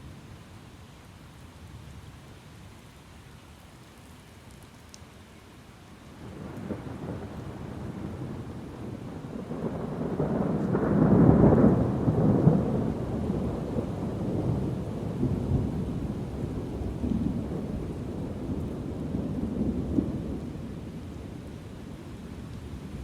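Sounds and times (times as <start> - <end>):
thunder rumbling: 6.2 - 23.0.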